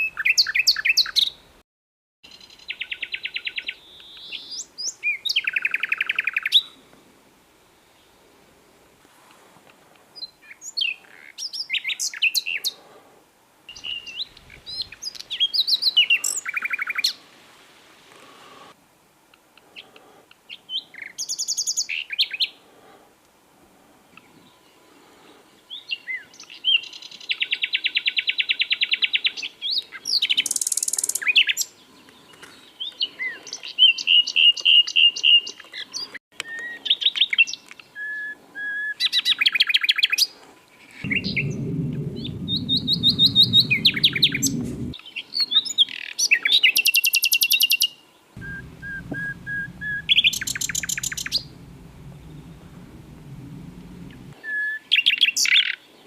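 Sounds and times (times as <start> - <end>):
low rumble: 41.0 - 45.0, 48.4 - 54.4
nightingale singing: 48.4 - 54.3.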